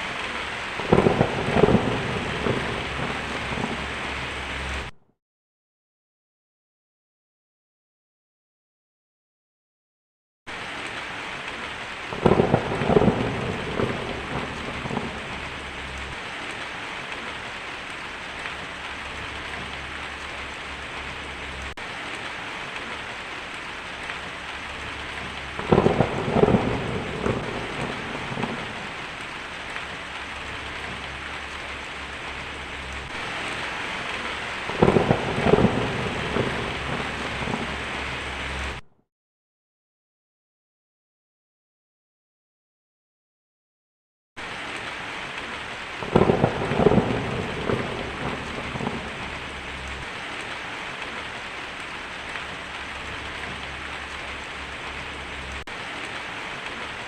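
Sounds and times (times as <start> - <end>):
heavy rain on a tin roof: 0.0 - 5.0, 10.5 - 38.8, 44.4 - 57.0
thunder rumbling: 0.0 - 5.0, 11.5 - 38.8, 45.4 - 57.0.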